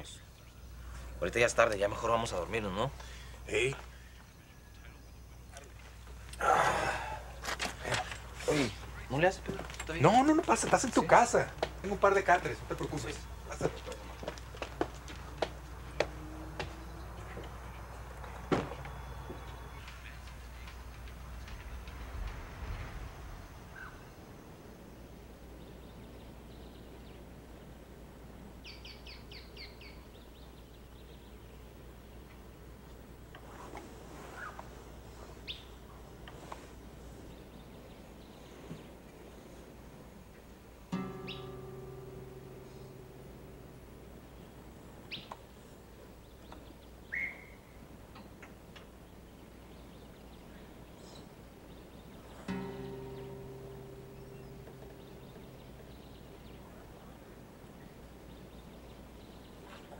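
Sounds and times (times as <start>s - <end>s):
bird chirping: 0.0s - 6.4s, 7.0s - 32.5s, 34.2s - 36.0s, 40.9s - 48.4s, 49.0s - 59.9s
steady low hum: 0.0s - 28.6s, 39.3s - 46.2s, 52.0s - 58.3s.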